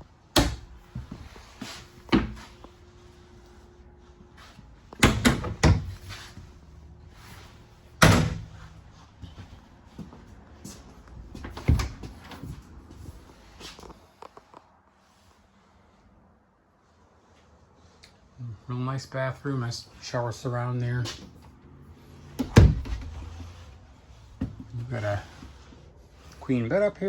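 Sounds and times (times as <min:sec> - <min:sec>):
cabinet doors opening and shutting: 0:00.3 - 0:00.9, 0:01.6 - 0:02.5, 0:04.9 - 0:06.4, 0:08.0 - 0:08.7, 0:11.4 - 0:12.4, 0:22.4 - 0:23.4.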